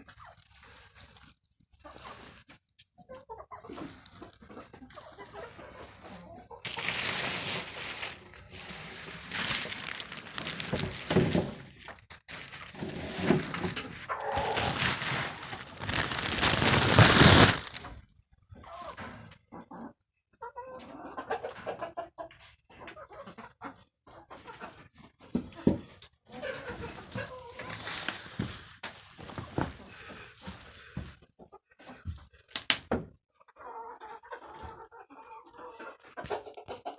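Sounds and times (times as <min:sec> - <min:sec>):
chickens clucking and calling: 0:03.0 - 0:10.7, 0:13.4 - 0:16.8, 0:18.6 - 0:25.1, 0:33.4 - 0:36.9.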